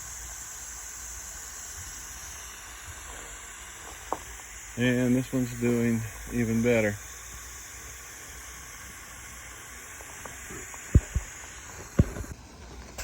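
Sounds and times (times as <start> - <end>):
background hiss: 0.0 - 13.0
short low thumps: 10.9 - 12.4.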